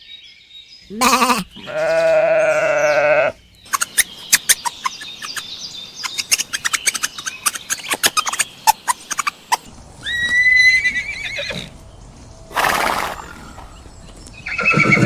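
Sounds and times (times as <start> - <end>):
wavering bleating call: 0.9 - 3.4
sharp clicks and chirps: 3.5 - 9.7.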